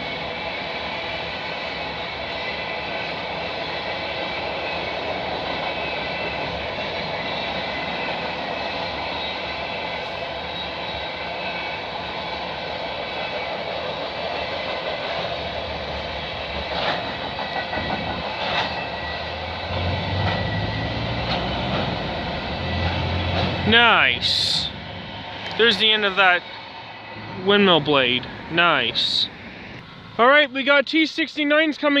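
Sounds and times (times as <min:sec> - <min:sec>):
sharp train clunks: 0:00.0 - 0:30.5
train wheels on rails: 0:00.0 - 0:31.9.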